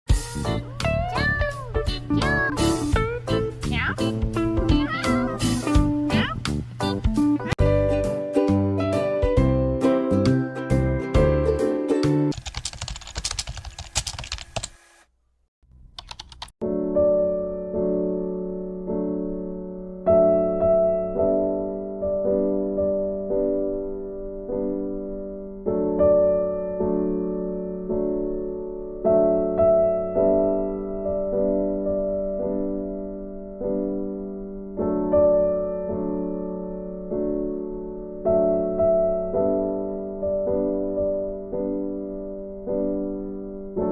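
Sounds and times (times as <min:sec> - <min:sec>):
background music: 0:00.1 - 0:12.4
soft piano tune: 0:00.6 - 0:12.3, 0:16.6 - 0:43.9
keyboard typing clicks: 0:12.3 - 0:14.8, 0:15.9 - 0:16.6.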